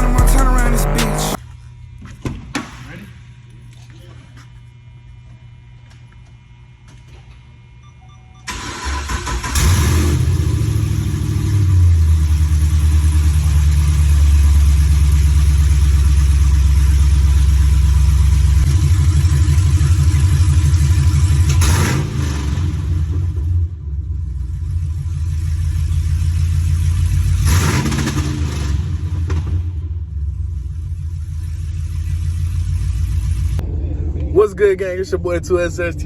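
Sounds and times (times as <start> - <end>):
car engine starting: 0.0 - 1.4, 8.5 - 36.0
engine lumpy idle: 9.5 - 36.0.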